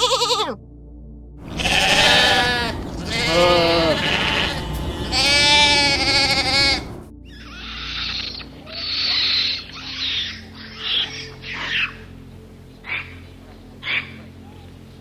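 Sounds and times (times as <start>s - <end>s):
farm animal bleating: 1.4s - 7.1s.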